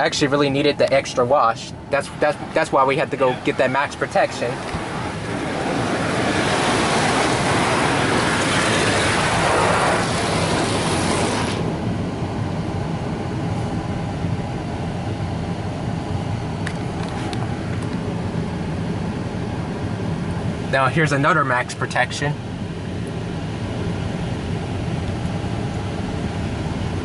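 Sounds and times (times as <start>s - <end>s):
low machinery hum: 0.0s - 27.0s
car wash spray hissing: 3.4s - 11.7s.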